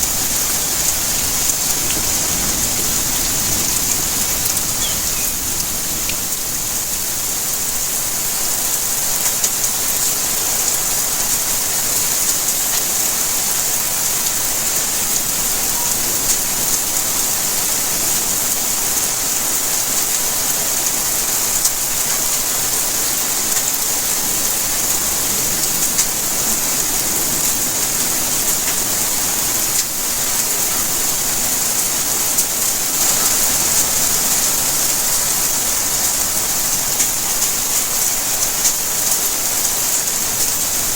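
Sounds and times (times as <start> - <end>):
raindrop ticks: 0.0 - 6.4, 32.4 - 40.9
steady rain hiss: 0.0 - 40.9.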